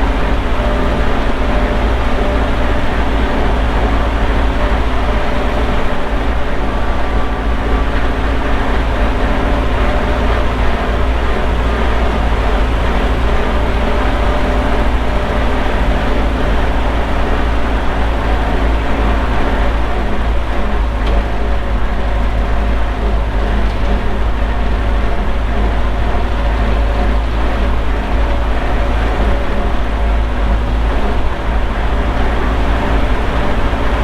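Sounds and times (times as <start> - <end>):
tractor engine running: 0.0 - 34.0.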